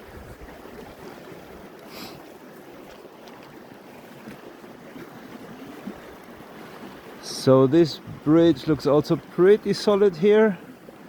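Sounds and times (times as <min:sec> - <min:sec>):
creek rushing: 0:00.0 - 0:11.0.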